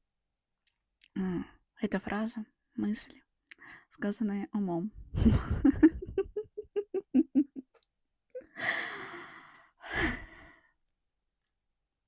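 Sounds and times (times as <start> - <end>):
person laughing: 5.1 - 8.6.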